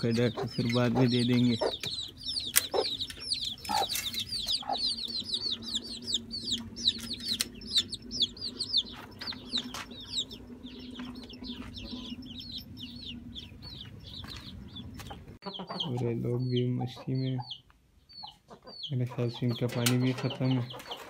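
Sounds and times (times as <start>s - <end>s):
small birds cheeping: 0.0s - 21.0s
sharp clicks: 0.7s - 4.6s.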